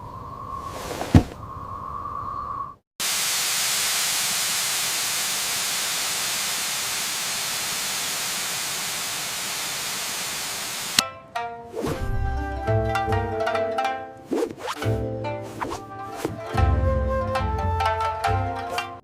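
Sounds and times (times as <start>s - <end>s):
steady hiss: 3.0s - 11.0s
music: 11.0s - 19.0s.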